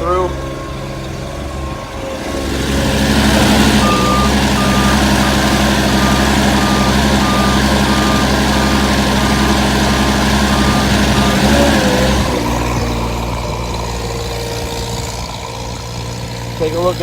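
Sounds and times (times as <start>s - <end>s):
truck engine running: 0.0s - 17.0s
truck warning beeper: 0.0s - 17.0s.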